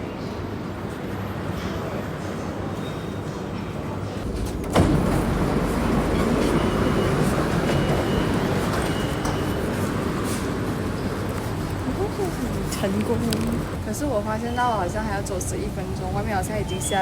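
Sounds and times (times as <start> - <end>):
vehicle cabin rumble: 4.2 - 16.1.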